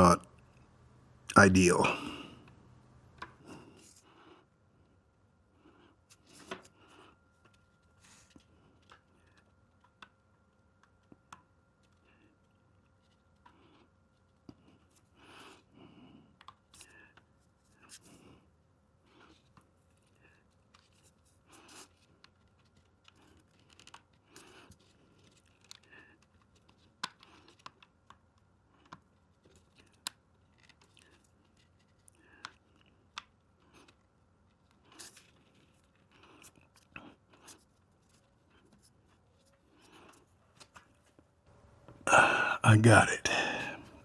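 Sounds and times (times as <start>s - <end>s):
small plastic clicks and rustles: 22.2s - 28.2s.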